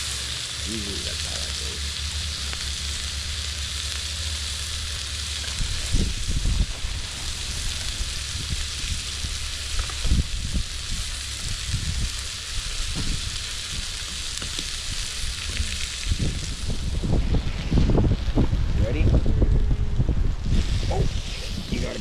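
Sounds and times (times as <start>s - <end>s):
burger patties sizzling: 0.0s - 22.0s
wind thumps on microphone: 5.5s - 22.0s.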